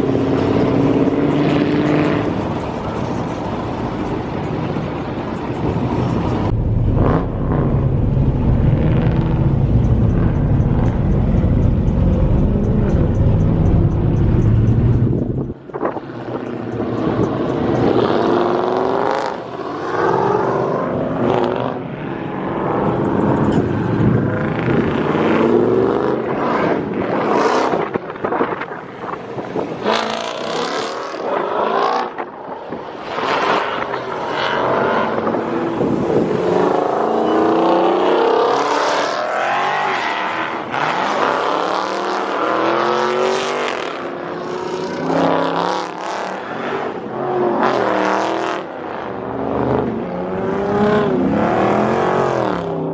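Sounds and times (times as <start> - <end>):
muscle car engines revving past: 0.0 - 52.9.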